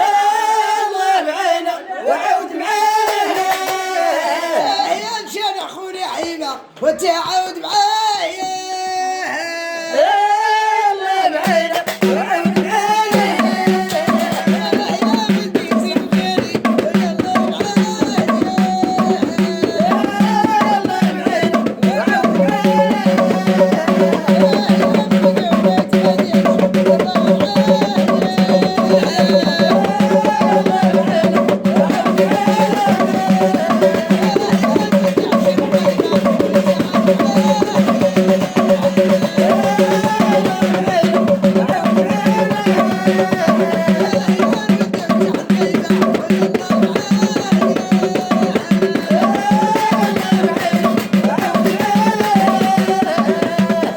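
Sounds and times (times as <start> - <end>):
hand drum percussion: 11.4 - 53.9.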